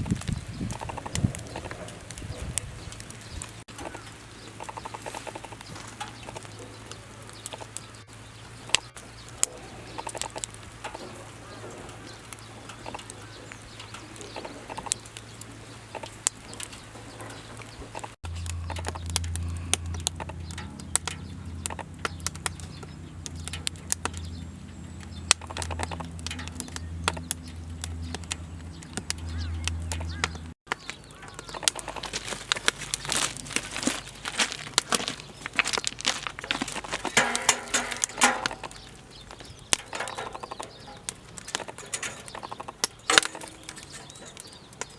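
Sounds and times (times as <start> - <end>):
firewood crackling and popping: 0.0 - 44.9
steady low rumble: 18.2 - 30.6.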